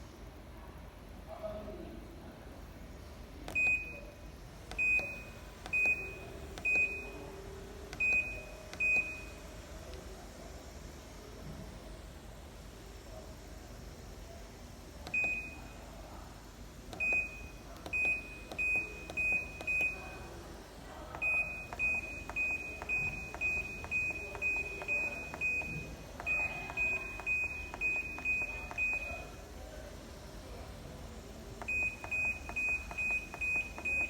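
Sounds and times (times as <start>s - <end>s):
control panel beeping: 3.5s - 4.1s, 4.7s - 7.3s, 7.9s - 9.4s, 15.1s - 15.8s, 17.0s - 20.3s, 21.1s - 29.4s, 31.6s - 34.0s.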